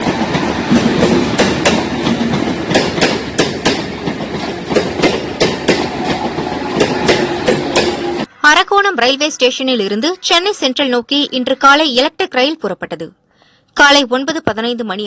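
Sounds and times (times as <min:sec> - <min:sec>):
wheels clacking over rail joints: 0:00.0 - 0:08.3
electric train rumbling: 0:00.0 - 0:08.4.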